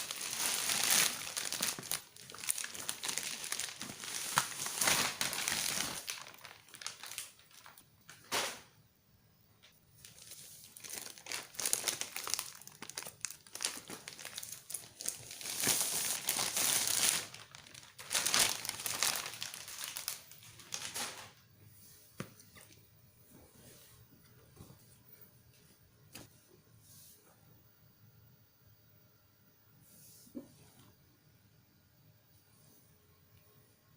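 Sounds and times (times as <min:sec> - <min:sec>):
plastic packaging crinkling: 0:00.0 - 0:08.7, 0:10.0 - 0:21.4.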